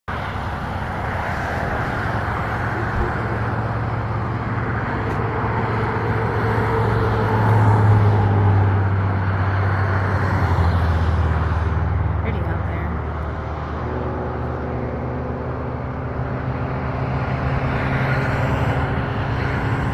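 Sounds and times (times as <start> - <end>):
engine humming: 0.1 - 19.9.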